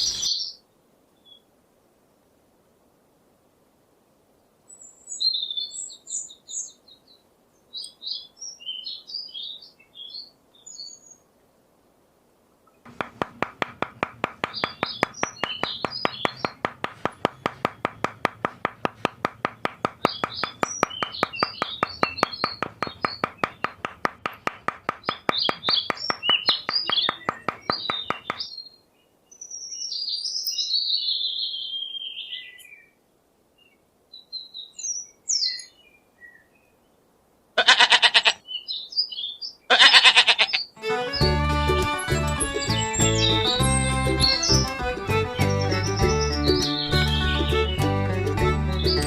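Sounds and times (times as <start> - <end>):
fast regular pulsing sound: 12.9 - 28.4
falling bird call: 12.9 - 28.5, 37.6 - 38.4
bird chirps: 13.0 - 32.8, 42.4 - 44.8, 45.4 - 47.9
short animal bleat: 37.6 - 38.4, 39.7 - 40.6.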